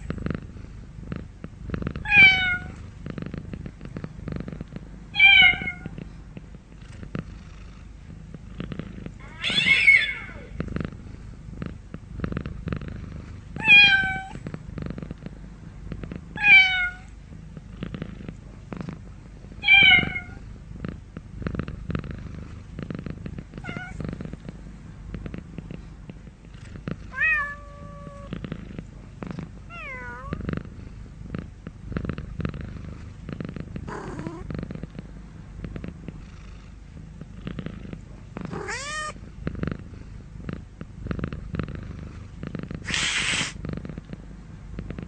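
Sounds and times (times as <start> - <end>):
cat purring: 0.0 - 45.0
cat meowing: 2.0 - 2.7, 5.2 - 5.9, 9.2 - 10.5, 13.6 - 14.4, 16.4 - 17.1, 19.6 - 20.4, 23.6 - 24.0, 27.2 - 28.3, 29.7 - 30.3, 38.5 - 39.2.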